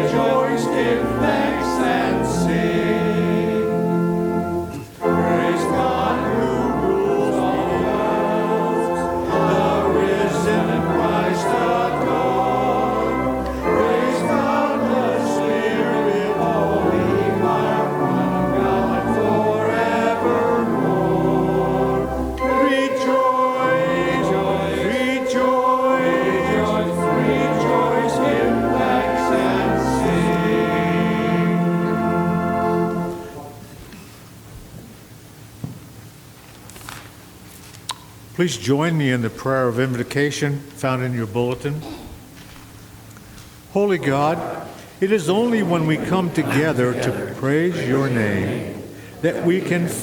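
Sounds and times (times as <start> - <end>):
choir singing sacred music: 0.0 - 33.8, 42.5 - 50.0
instrumental accompaniment: 0.0 - 34.1.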